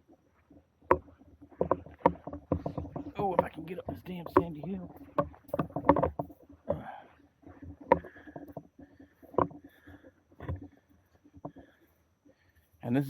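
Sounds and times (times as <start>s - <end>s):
sharp knocks: 0.9s - 7.0s.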